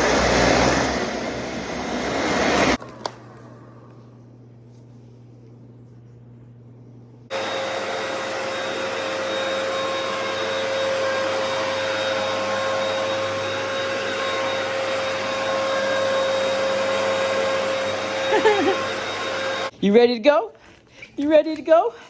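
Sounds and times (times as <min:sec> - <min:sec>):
vacuum cleaner running: 0:00.0 - 0:04.2, 0:07.3 - 0:19.8.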